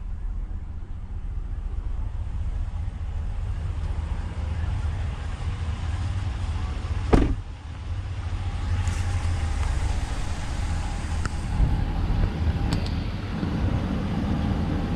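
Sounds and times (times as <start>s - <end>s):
vehicle engine rumbling: 0.0s - 14.9s.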